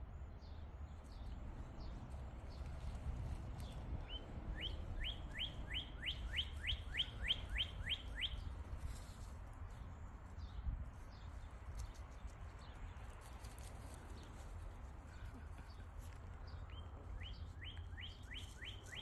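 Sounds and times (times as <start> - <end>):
songbird whistling rising notes: 4.5 - 8.4.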